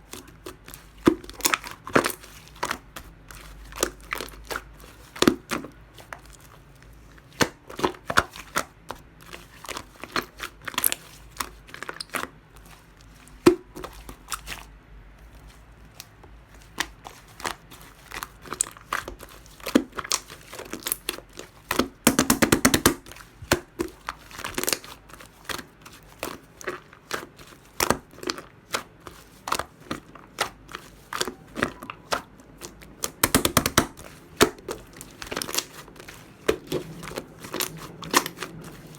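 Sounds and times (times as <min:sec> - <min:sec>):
slime squished by hand: 0:00.0 - 0:38.9
rapid clicking of slime: 0:16.0 - 0:38.9.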